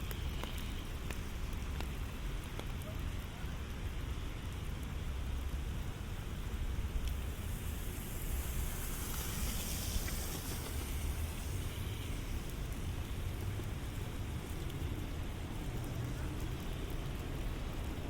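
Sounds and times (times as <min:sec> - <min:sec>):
steady rain falling: 0:00.0 - 0:18.0
hiss: 0:05.8 - 0:14.0.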